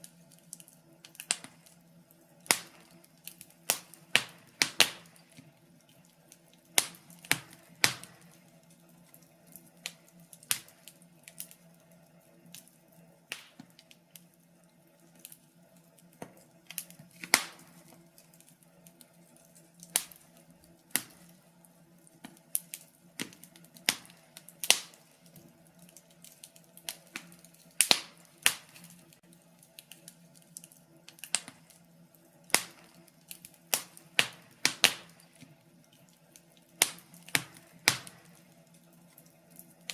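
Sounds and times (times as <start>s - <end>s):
faint steady hum: 0.0s - 39.9s
wood fire crackling: 0.0s - 39.9s.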